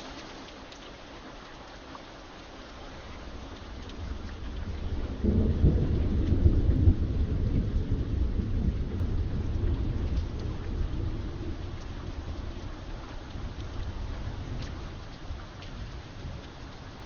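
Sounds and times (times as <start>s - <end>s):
steady rain: 0.0s - 17.0s
low roll of thunder: 3.4s - 17.0s.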